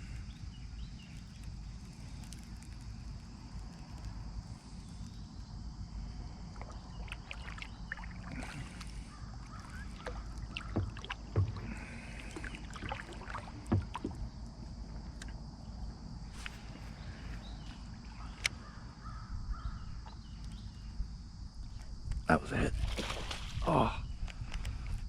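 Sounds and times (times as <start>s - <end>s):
gear knocking on kayak hull: 9.7s - 14.8s.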